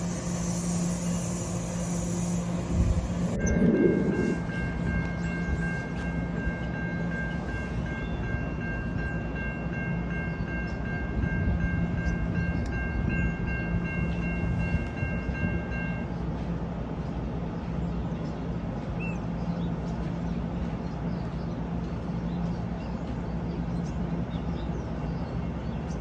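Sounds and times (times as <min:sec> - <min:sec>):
high-pitched horn chord: 0:00.0 - 0:04.9
electric train rumbling: 0:00.0 - 0:26.0.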